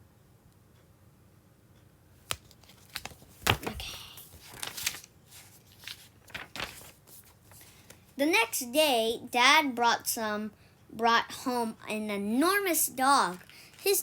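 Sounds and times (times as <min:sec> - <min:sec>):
book pages turning: 0:02.2 - 0:08.1, 0:13.3 - 0:13.9.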